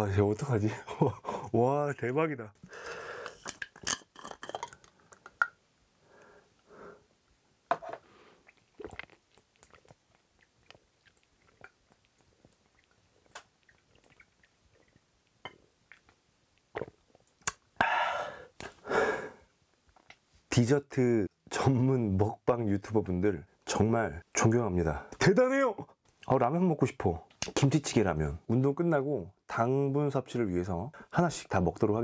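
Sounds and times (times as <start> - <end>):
breathy exhale: 2.7 - 3.4, 17.8 - 19.4
plastic bottle cap twisting off: 3.2 - 5.6
sips and swallows: 8.4 - 17.6
wet mouth clicks: 8.4 - 17.7.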